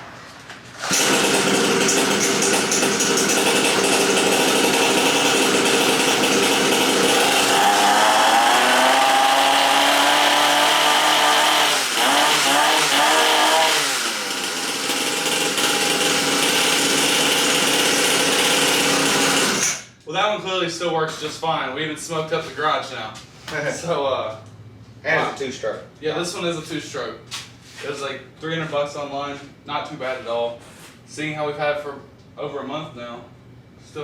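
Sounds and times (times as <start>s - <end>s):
dirt bike engine revving: 0.8s - 19.8s.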